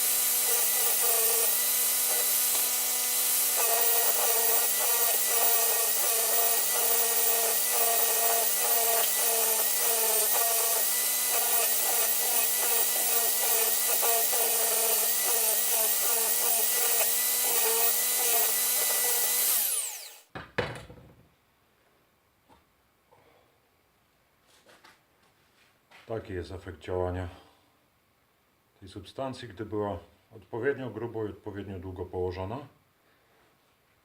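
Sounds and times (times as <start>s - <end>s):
motor winding down: 0.0s - 20.2s
power tool grinding metal: 0.0s - 20.3s.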